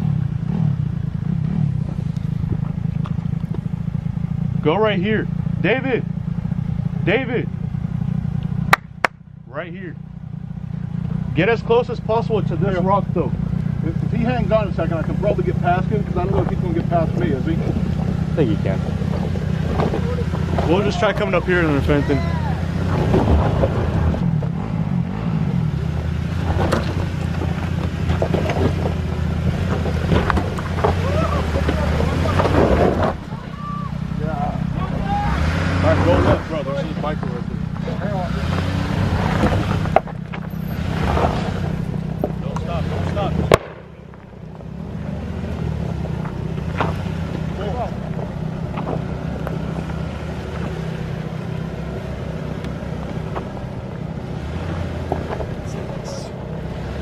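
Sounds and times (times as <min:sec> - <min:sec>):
jeep engine running low: 0:00.0 - 0:57.0.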